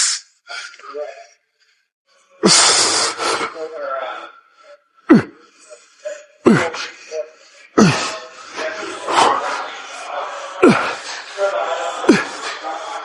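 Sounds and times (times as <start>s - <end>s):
man breathing forcefully: 2.4s - 3.5s
man grunting with effort: 5.1s - 5.3s, 7.8s - 8.1s.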